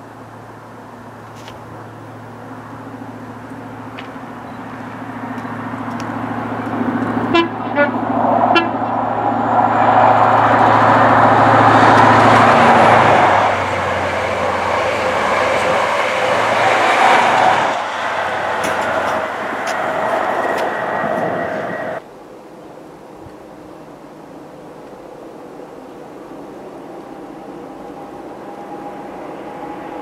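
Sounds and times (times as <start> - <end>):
diesel train engine drone: 0.0 - 30.0
rush of train wheels and air: 3.4 - 22.0, 23.1 - 30.0
train horn toots: 7.2 - 9.0.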